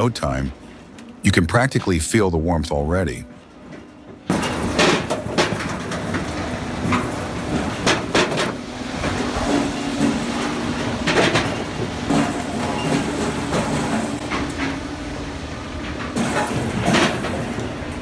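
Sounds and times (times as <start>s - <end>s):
firewood processor humming: 4.3s - 18.0s.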